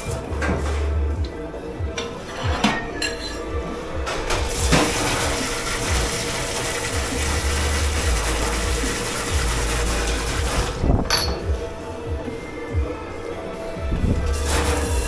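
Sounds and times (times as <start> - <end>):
water spraying hard: 4.4 - 11.0, 14.0 - 15.0.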